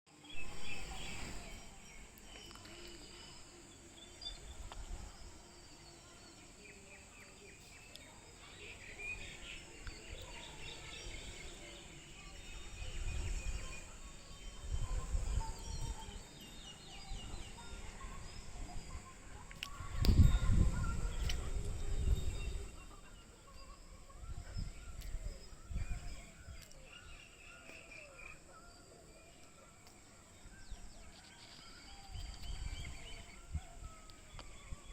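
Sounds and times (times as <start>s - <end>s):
birds chirping: 0.1s - 34.9s
low rumbling wind gusts: 9.2s - 27.2s.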